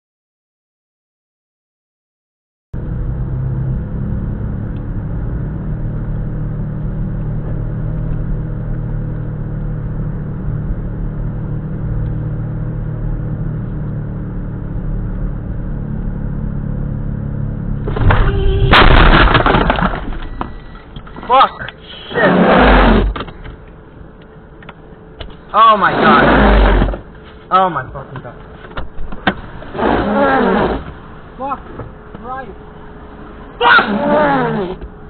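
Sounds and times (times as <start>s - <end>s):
road and engine rumble: 2.8s - 35.0s
collision bang and crunch: 17.8s - 21.0s.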